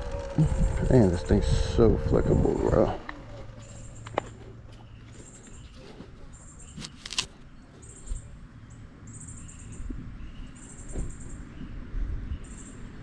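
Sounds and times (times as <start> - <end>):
tyres rumbling on trail: 0.0 - 7.4
wind: 0.0 - 13.0.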